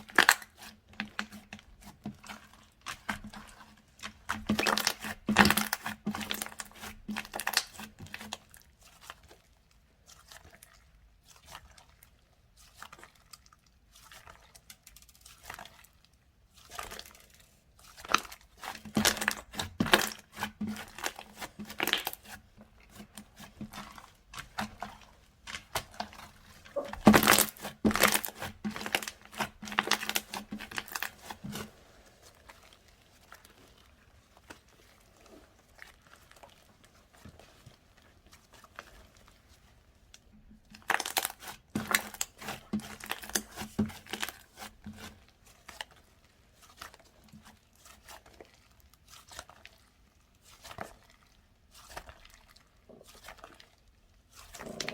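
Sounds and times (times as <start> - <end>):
slime crackling and popping: 0.0 - 54.9.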